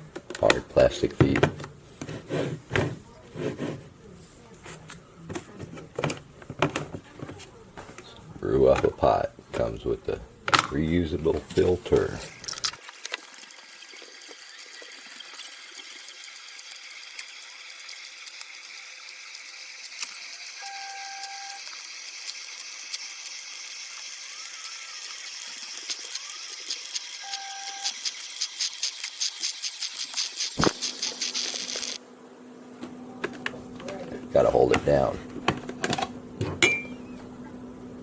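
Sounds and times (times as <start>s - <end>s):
coffee maker hissing and sputtering: 0.0s - 4.0s, 5.7s - 38.0s
short beeps: 27.2s - 27.9s.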